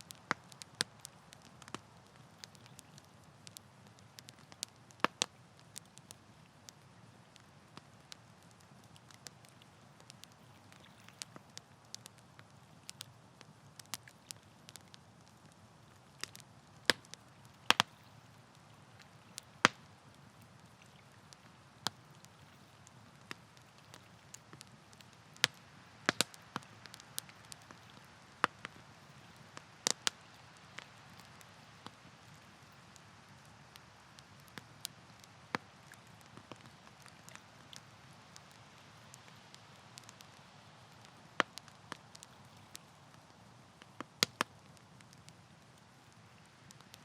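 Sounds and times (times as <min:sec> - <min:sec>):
campfire crackling and popping: 0:00.0 - 0:47.0
faint steady hiss: 0:00.0 - 0:47.0.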